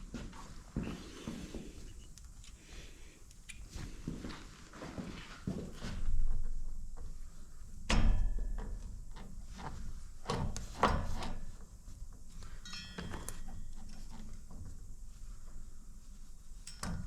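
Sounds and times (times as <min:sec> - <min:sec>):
light metal clicks: 0:03.2 - 0:03.7, 0:16.6 - 0:17.0.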